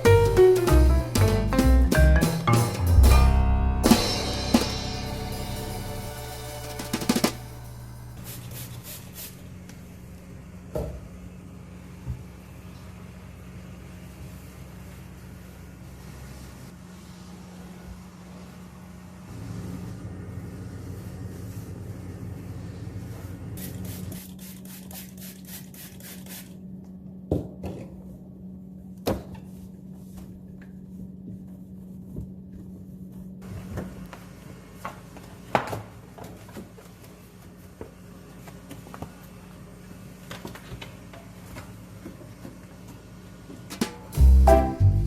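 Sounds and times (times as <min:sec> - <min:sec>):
steady low hum: 0:02.5 - 0:10.7.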